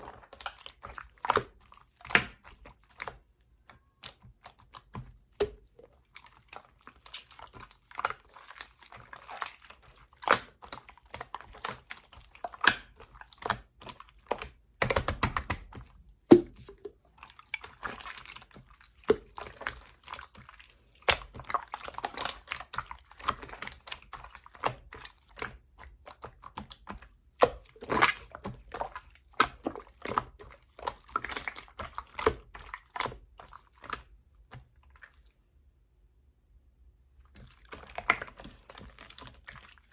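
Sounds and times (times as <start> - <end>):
slime squelching: 0.0 - 35.7, 37.1 - 39.9
slime clicking and popping: 10.2 - 16.8.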